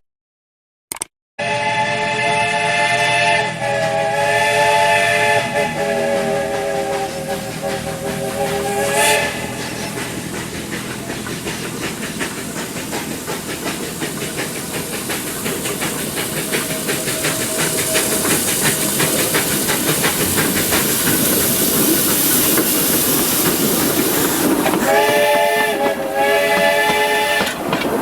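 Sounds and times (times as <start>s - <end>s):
steam locomotive whistle chord: 1.4s - 10.1s, 24.8s - 27.6s
steam locomotive exhaust beat: 1.4s - 28.0s
steam hiss: 2.6s - 28.0s.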